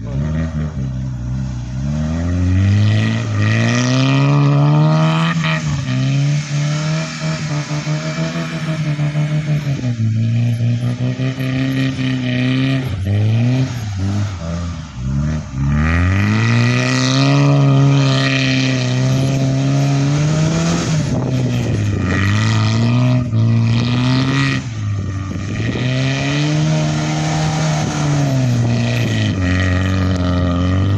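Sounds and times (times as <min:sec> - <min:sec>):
car engine revving: 0:00.0 - 0:30.9.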